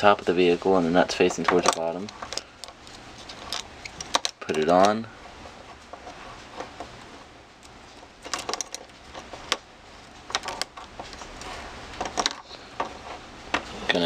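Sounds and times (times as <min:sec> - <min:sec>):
plastic and metal parts clicking: 0:01.4 - 0:05.0, 0:08.2 - 0:09.6, 0:10.3 - 0:11.4.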